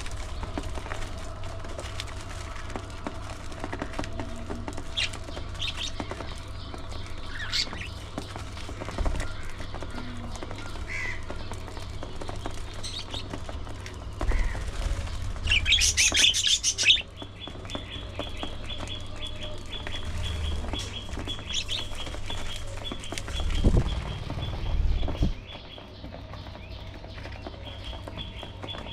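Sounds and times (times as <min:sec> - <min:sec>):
budgerigars chirping and chattering: 0:04.9 - 0:13.3, 0:14.2 - 0:28.9.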